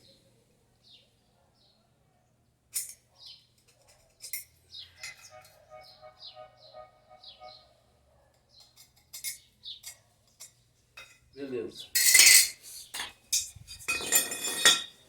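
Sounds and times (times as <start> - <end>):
metal pieces clattering: 13.9 - 14.9.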